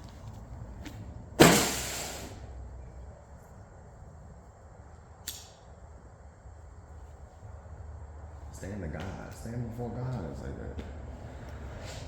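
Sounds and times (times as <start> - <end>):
sharp bang: 1.4 - 2.3.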